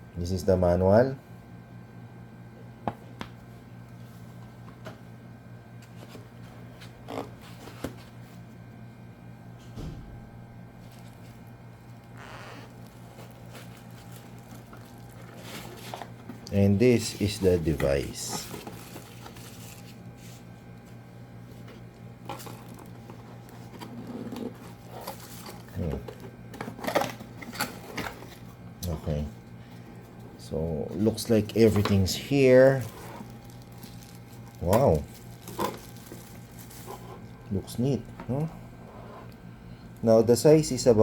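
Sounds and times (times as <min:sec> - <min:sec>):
steady low hum: 0:00.0 - 0:41.0
packaging rustling: 0:10.8 - 0:16.4, 0:17.0 - 0:20.4, 0:22.2 - 0:28.5, 0:31.0 - 0:37.5.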